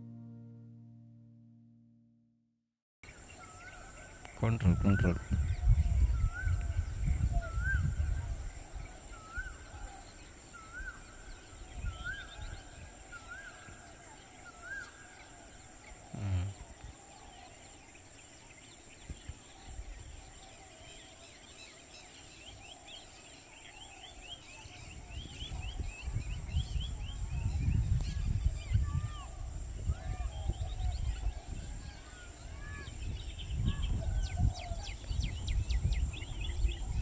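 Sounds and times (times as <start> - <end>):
faint low rumble: 0.0 - 2.3.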